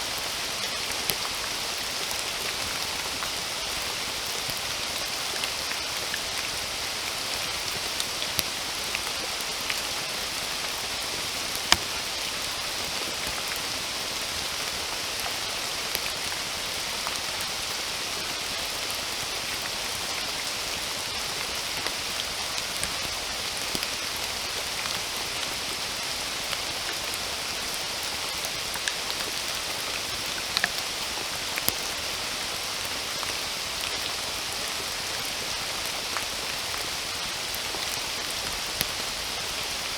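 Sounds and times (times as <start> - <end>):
steady rain hiss: 0.0 - 39.9
raindrop ticks: 30.4 - 31.0.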